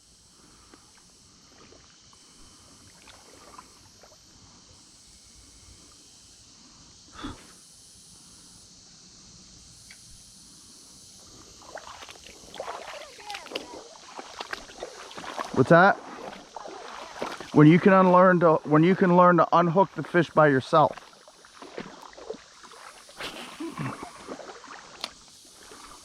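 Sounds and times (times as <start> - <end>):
creek water running: 0.0 - 6.2, 11.1 - 26.0
water splashing: 11.6 - 26.0.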